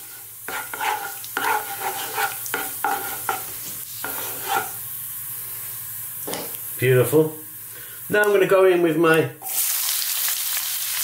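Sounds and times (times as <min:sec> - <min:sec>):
wooden spatula scraping pan: 0:00.0 - 0:04.8
seeds sizzling in hot oil: 0:00.0 - 0:08.7, 0:09.4 - 0:11.0.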